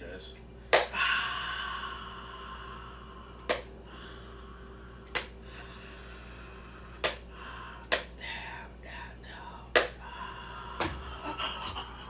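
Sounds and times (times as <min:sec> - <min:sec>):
sharp slaps: 0:00.7 - 0:01.0, 0:03.4 - 0:03.7, 0:05.1 - 0:05.4, 0:07.0 - 0:07.2, 0:07.9 - 0:08.2, 0:09.7 - 0:10.0.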